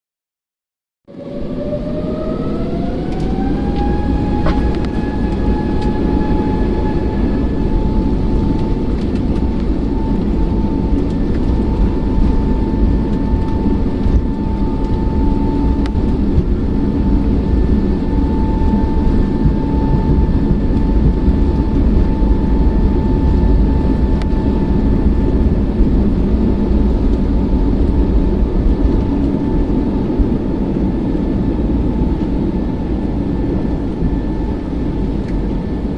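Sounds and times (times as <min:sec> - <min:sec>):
jet engines spooling up: 0:01.1 - 0:35.9.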